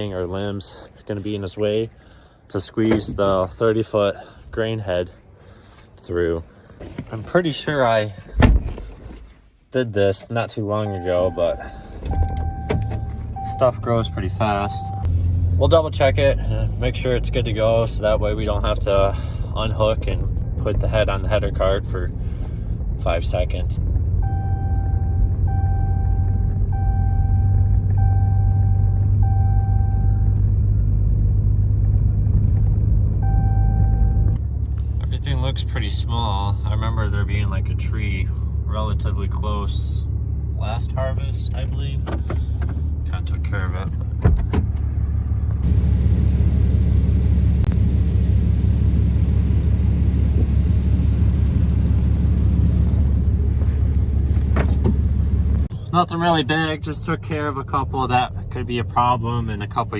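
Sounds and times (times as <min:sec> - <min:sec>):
vehicle engine rumbling: 0:00.0 - 0:59.9
electronic warning chime: 0:10.8 - 0:15.1.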